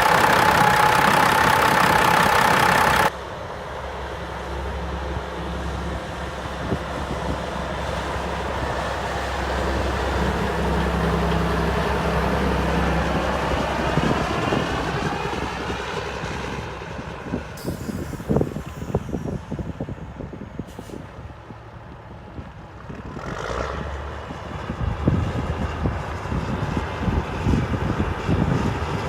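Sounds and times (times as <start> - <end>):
diesel truck engine running: 0.0 - 3.2
hiss: 17.6 - 19.6.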